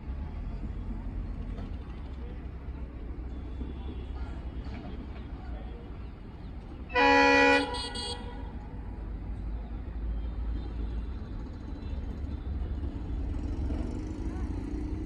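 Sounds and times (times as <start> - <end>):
locomotive horn blast: 6.9 - 8.6.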